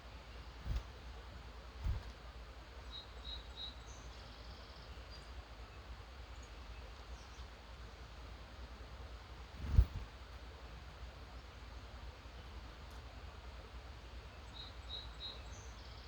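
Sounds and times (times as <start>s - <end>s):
songbirds chirping: 0.0s - 8.2s, 11.2s - 16.0s
steady low rumble: 9.6s - 10.1s.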